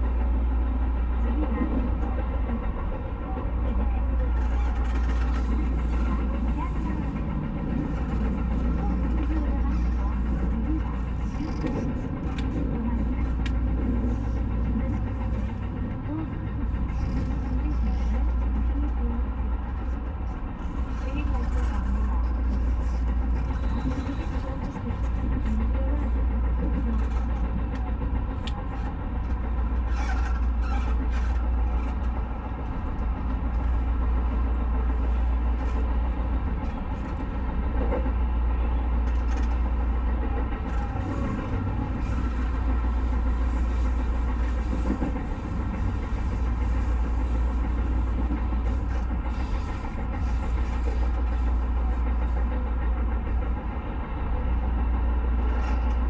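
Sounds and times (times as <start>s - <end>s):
continuous hum: 0.0s - 56.0s
train rumbling: 0.0s - 56.0s.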